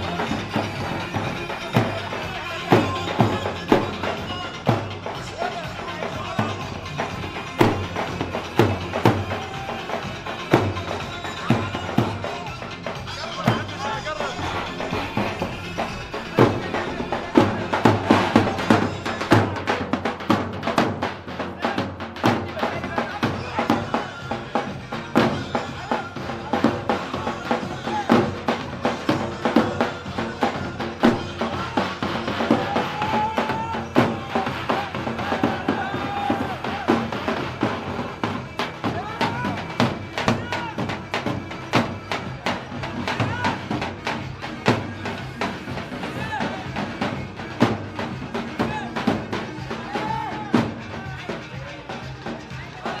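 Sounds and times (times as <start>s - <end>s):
bass drum beating: 0.0s - 51.6s
folk dance music: 0.0s - 53.0s.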